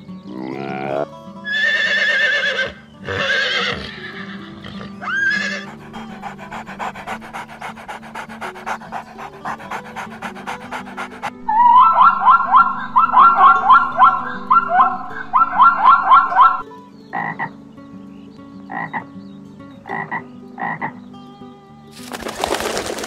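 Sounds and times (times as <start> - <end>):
faint background music: 0.0 - 23.0
whinny-like animal calls: 0.3 - 16.6
dog panting rapidly: 5.5 - 16.6, 22.0 - 23.0.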